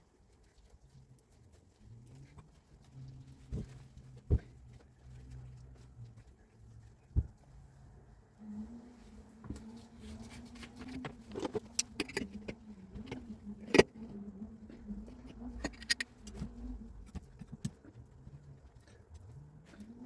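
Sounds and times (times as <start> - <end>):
clicks and knocks of tools: 15.6 - 17.9.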